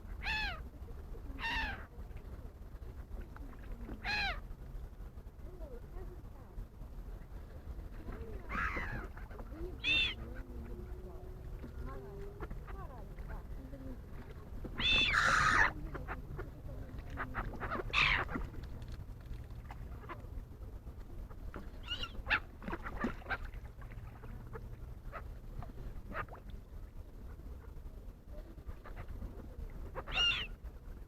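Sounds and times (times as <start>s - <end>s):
wild birds calling: 8.4s - 10.9s, 14.8s - 16.2s, 17.2s - 18.5s, 30.0s - 30.6s.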